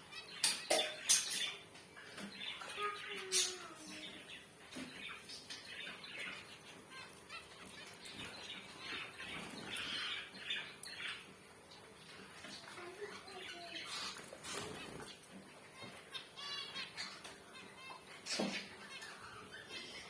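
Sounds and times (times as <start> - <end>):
finches chirping: 0.0 - 20.0.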